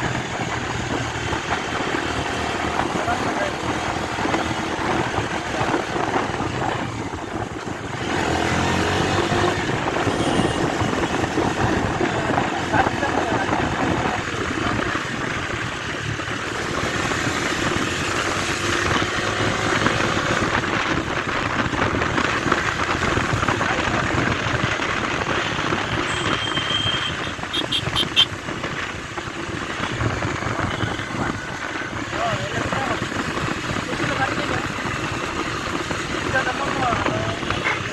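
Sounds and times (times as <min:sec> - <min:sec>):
motorcycle engine running: 0:00.0 - 0:37.9
wind and road noise: 0:00.0 - 0:37.9
short high beeps: 0:26.1 - 0:28.3.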